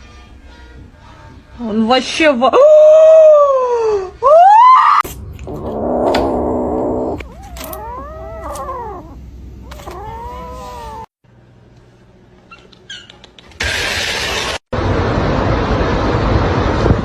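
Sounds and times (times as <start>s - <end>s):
cats meowing loudly: 7.2s - 11.1s.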